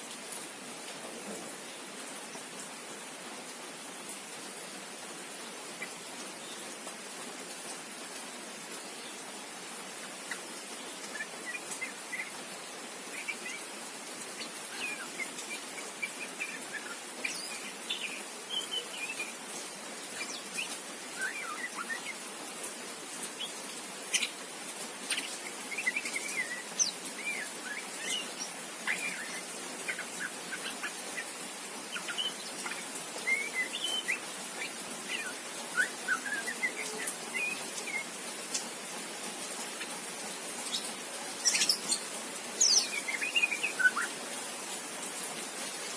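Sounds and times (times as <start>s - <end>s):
steady hiss: 0.0s - 45.9s
young bird chirping and warbling: 10.3s - 19.4s, 23.3s - 24.4s, 25.0s - 38.7s, 40.6s - 44.2s.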